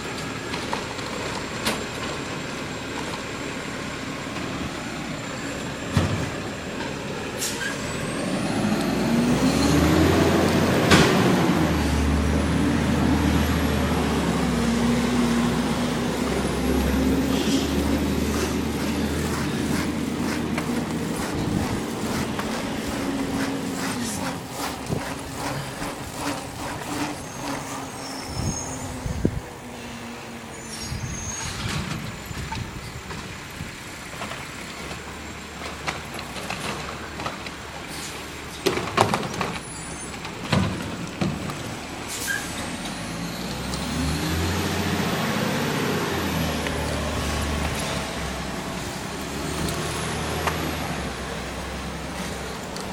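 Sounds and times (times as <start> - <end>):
garbage truck engine running: 0.0 - 52.9
air brake hiss: 7.4 - 7.8
clanks and bangs of collection gear: 35.6 - 42.6.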